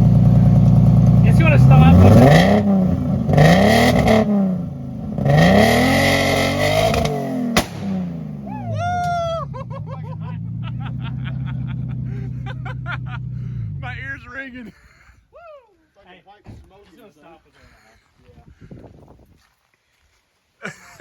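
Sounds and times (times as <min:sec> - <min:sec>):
car engine revving: 0:00.0 - 0:09.0, 0:09.6 - 0:14.2
car engine idling: 0:00.0 - 0:14.6.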